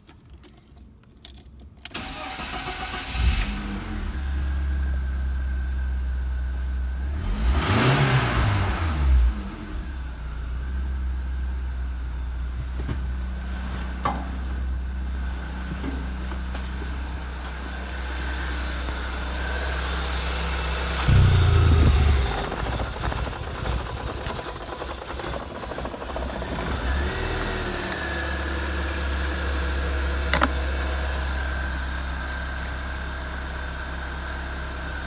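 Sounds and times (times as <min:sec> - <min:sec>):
car engine idling: 0:14.6 - 0:35.0.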